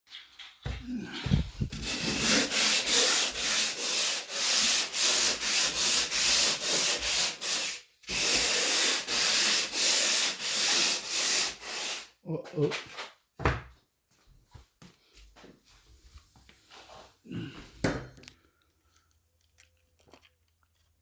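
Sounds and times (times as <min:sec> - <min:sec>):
hand sanding drywall: 0:01.3 - 0:12.2.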